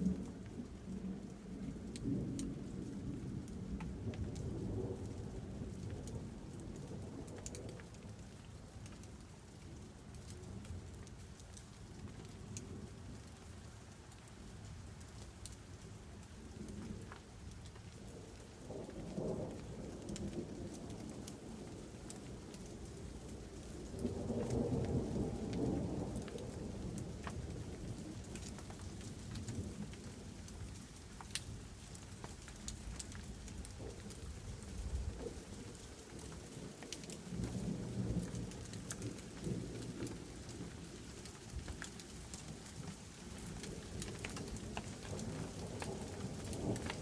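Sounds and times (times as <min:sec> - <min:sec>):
raindrops ticking: 0:00.0 - 0:47.0
steady rain: 0:00.0 - 0:47.0
thunder rumbling: 0:43.3 - 0:47.0.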